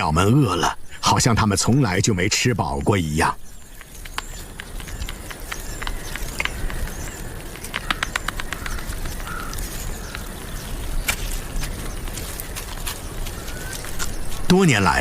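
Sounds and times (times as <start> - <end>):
sharp clicks: 3.7 - 10.3.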